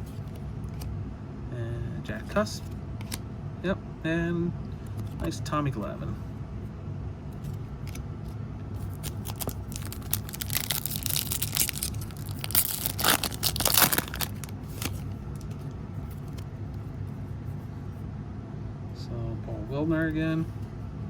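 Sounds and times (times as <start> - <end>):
steady low hum: 0.0 - 21.0
wrapper tearing and crinkling: 8.8 - 15.7.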